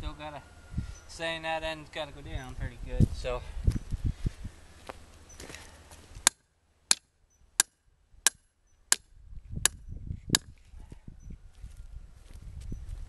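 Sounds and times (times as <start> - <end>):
hammer striking a stake: 6.2 - 10.5.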